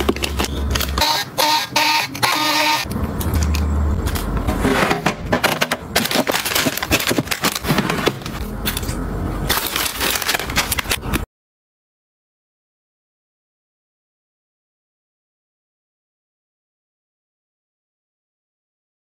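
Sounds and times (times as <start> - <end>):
packaging crackling: 5.8 - 11.2.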